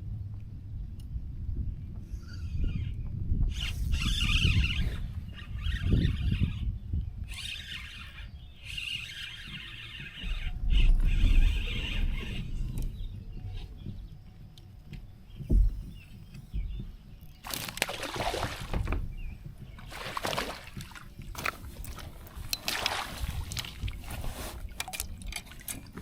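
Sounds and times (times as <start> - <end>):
water splashing against kayak hull: 17.4 - 26.0.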